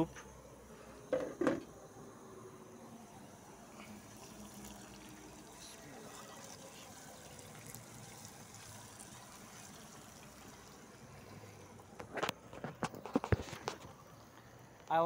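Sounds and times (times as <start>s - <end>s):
liquid trickling: 3.8s - 14.6s.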